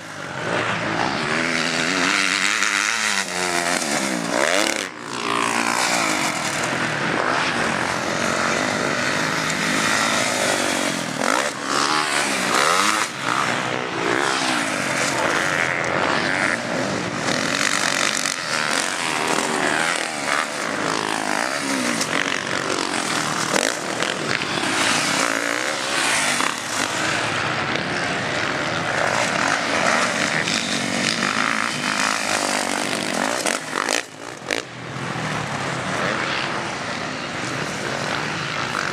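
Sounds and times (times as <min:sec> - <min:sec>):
motocross bikes revving: 0:00.0 - 0:38.9.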